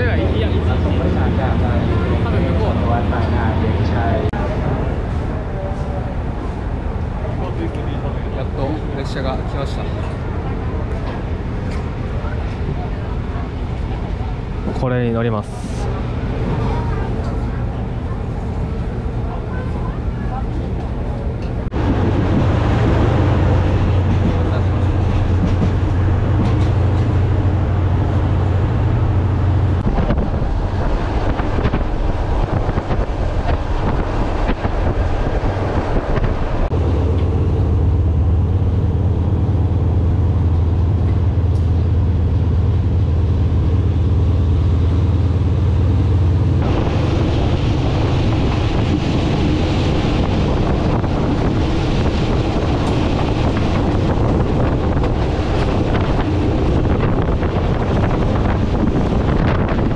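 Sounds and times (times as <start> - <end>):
deep train rumble: 0.0 - 59.9
wind rushing in: 21.6 - 37.6, 46.4 - 59.9.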